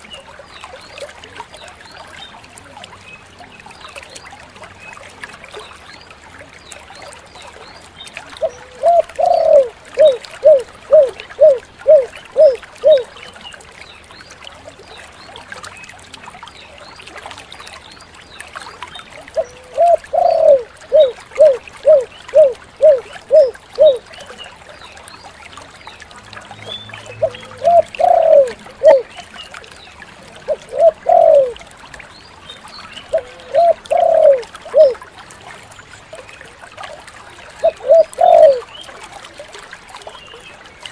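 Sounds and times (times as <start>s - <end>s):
dove cooing: 8.4s - 13.1s, 19.4s - 24.0s, 27.2s - 29.1s, 30.5s - 31.6s, 33.1s - 35.0s, 37.6s - 38.7s.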